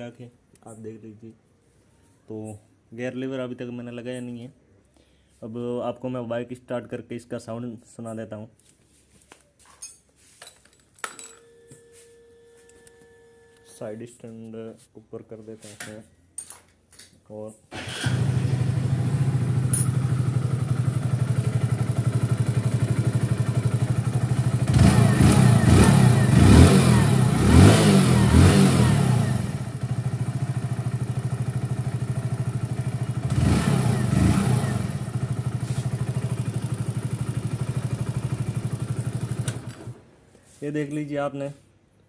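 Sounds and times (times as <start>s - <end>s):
motorcycle engine idling and revving: 17.8s - 40.1s.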